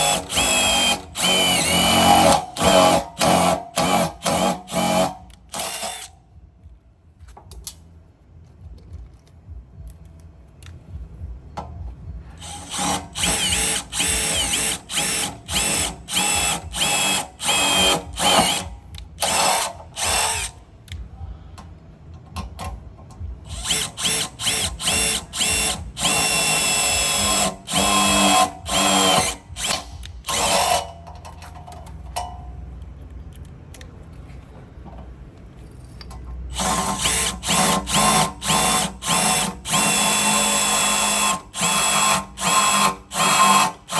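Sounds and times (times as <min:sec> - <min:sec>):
impact driver whining bursts: 0:00.0 - 0:06.1, 0:12.4 - 0:20.5.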